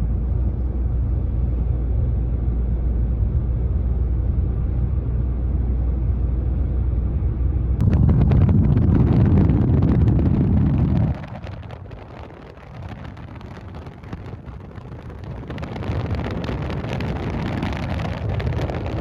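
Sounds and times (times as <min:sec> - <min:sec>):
car road rumble: 0:07.7 - 0:19.0
wind buffeting microphone: 0:07.8 - 0:19.0.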